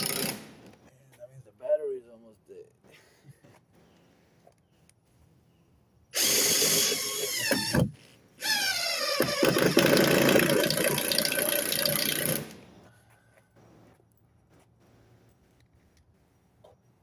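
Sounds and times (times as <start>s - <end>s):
power drill driving screws: 0.0s - 0.5s, 6.2s - 10.8s.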